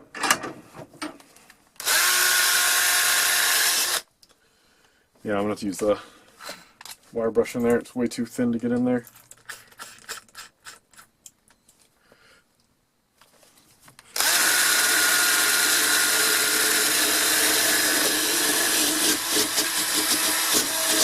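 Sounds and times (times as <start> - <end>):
power drill with wire brush whining: 1.8 - 4.0, 14.2 - 21.0.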